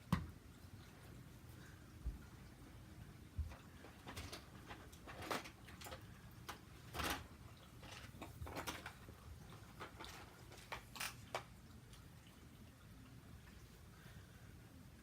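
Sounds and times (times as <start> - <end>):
toy train track pieces clicking: 9.8 - 11.5.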